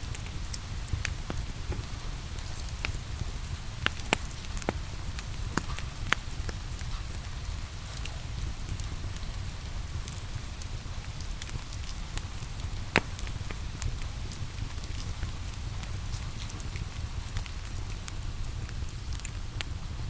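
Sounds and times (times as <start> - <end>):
rain hissing: 0.0 - 20.0
wood fire crackling and popping: 0.0 - 20.0.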